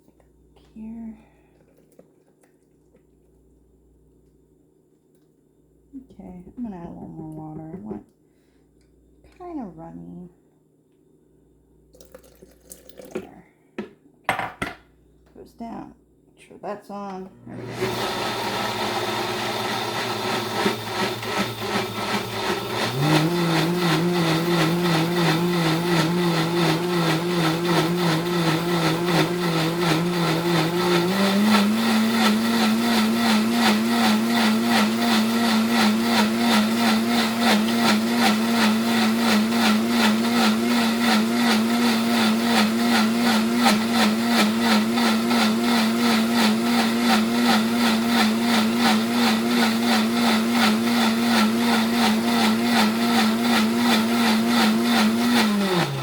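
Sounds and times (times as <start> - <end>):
blender motor blending sauce: 17.4 - 56.0.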